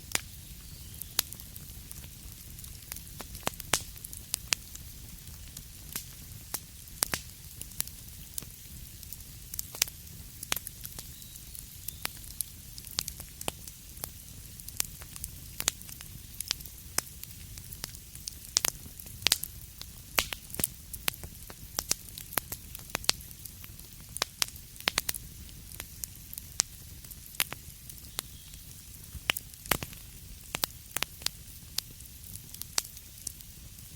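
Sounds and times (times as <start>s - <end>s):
wood fire crackling: 0.0s - 33.9s.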